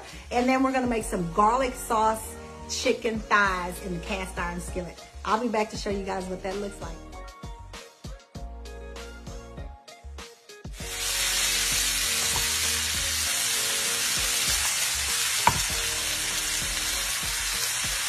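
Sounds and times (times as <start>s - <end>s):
chicken sizzling in a skillet: 10.7s - 18.0s.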